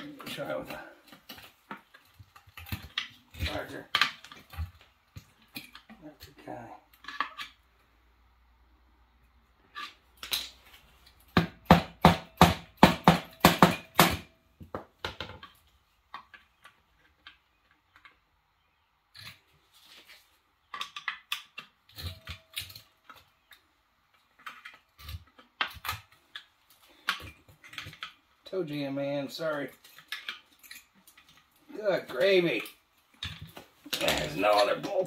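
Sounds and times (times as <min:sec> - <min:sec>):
rapid metal-on-metal knocks: 0:11.3 - 0:14.4.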